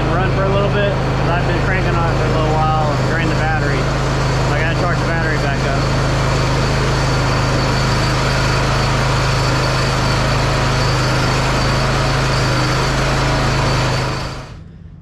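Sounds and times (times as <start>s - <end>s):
mower engine running: 0.0s - 14.7s.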